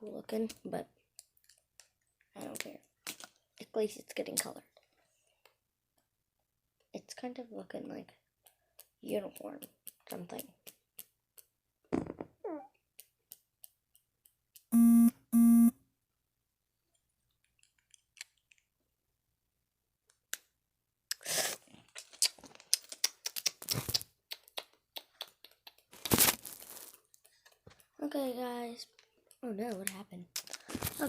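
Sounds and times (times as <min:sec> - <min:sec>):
short electronic beeps: 0:14.7 - 0:15.7.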